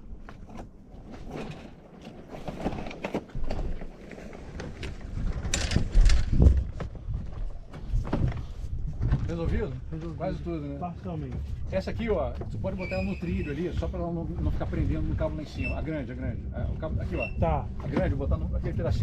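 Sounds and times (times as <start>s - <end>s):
rigging knocks and rattles: 0.4s - 15.3s
wind buffeting microphone: 4.6s - 19.0s.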